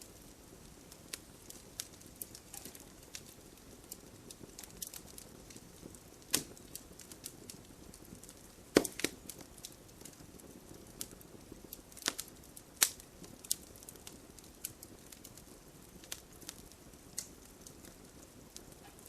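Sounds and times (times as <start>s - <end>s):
campfire crackling and popping: 0.0s - 19.0s
low steady hiss: 0.0s - 19.0s.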